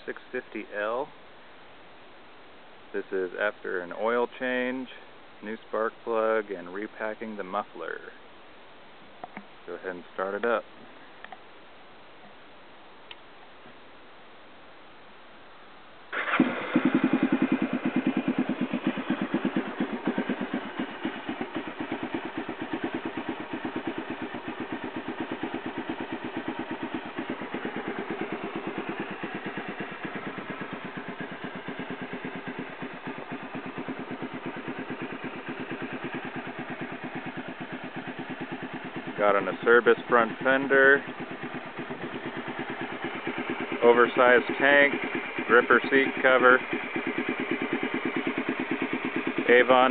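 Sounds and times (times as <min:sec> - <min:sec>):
motorcycle engine idling: 0:16.1 - 0:49.9.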